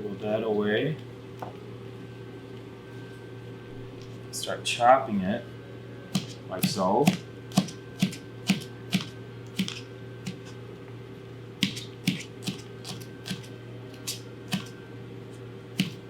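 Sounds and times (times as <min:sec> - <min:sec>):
steady low hum: 0:00.0 - 0:16.0
knife chopping on cutting board: 0:06.2 - 0:10.6, 0:11.6 - 0:14.7, 0:15.7 - 0:16.0.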